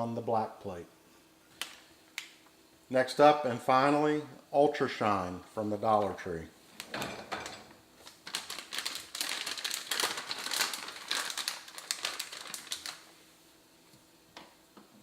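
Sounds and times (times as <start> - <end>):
detergent pack crinkling: 8.0 - 13.1.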